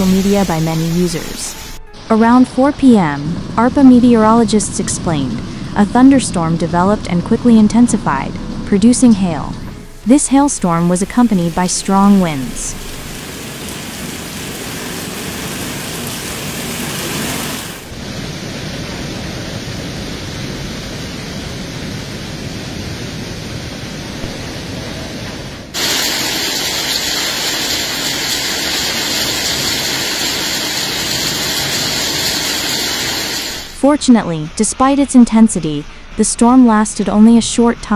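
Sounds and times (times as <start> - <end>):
heavy hail and rain: 9.7 - 21.6, 24.2 - 33.8.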